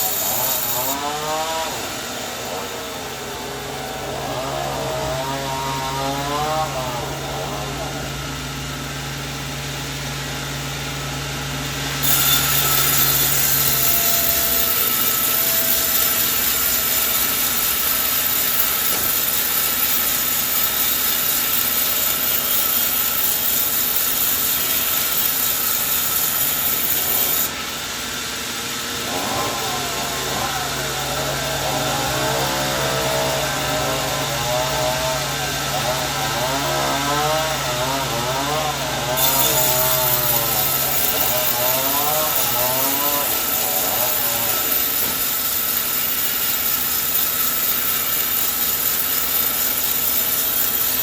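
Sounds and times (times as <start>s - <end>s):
saw blade cutting log: 0.0s - 2.7s, 12.0s - 27.6s, 28.9s - 51.0s
motor humming: 0.0s - 51.0s.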